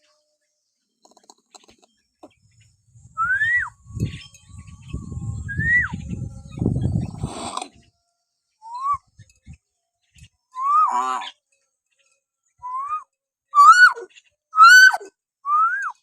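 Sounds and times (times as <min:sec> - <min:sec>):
bird whistling rising notes: 0:02.9 - 0:07.5, 0:08.6 - 0:09.2, 0:10.5 - 0:10.9, 0:12.6 - 0:13.0, 0:13.6 - 0:16.0.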